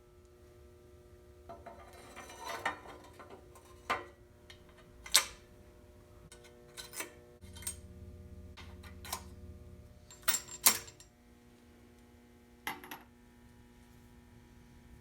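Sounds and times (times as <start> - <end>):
low hum: 5.4 - 12.3.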